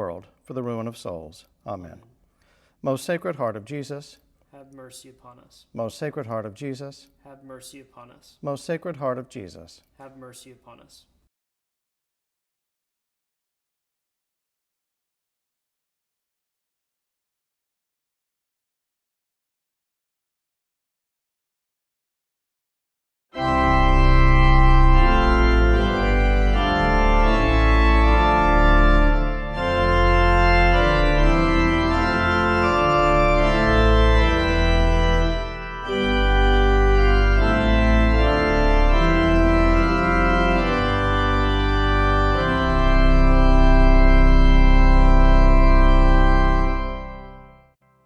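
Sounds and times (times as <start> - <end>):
organ playing sustained chords: 23.4 - 47.8.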